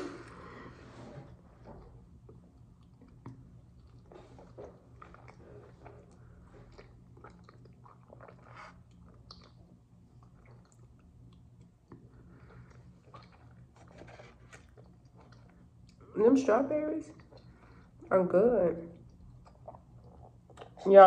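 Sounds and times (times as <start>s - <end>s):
faint low hum: 0.0s - 21.0s
chewing with wet mouth smacks: 2.2s - 16.1s, 17.1s - 18.0s, 18.9s - 20.9s.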